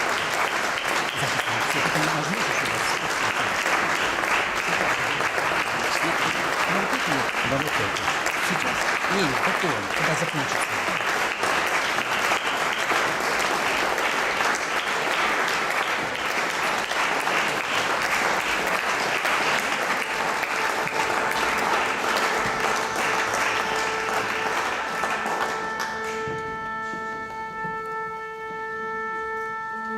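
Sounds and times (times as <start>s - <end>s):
audience applauding: 0.0s - 28.0s
faint held instrument notes: 19.8s - 29.9s.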